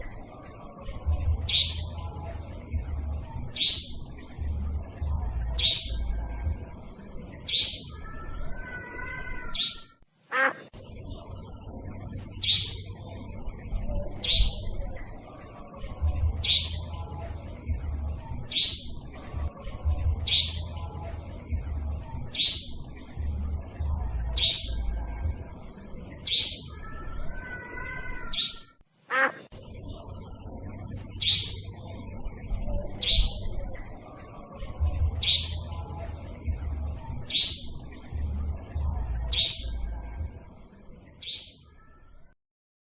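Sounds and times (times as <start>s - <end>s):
sharp high-pitched bird calls: 1.5s - 2.1s, 3.5s - 4.1s, 5.6s - 6.1s, 7.4s - 10.7s, 12.4s - 13.0s, 14.2s - 14.8s, 16.4s - 16.9s, 18.5s - 19.0s, 20.2s - 20.8s, 22.3s - 22.9s, 24.4s - 24.9s, 26.2s - 29.5s, 31.2s - 31.8s, 33.0s - 33.6s, 35.2s - 35.8s, 37.3s - 37.8s, 39.3s - 39.9s, 41.2s - 41.8s.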